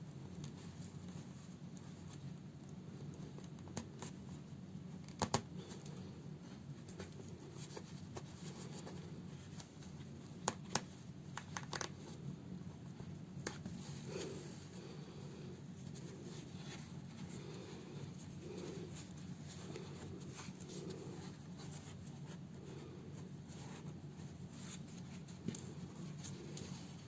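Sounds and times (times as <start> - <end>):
steady low hum: 0.0 - 27.0
cloth and thread rustling: 5.6 - 27.0.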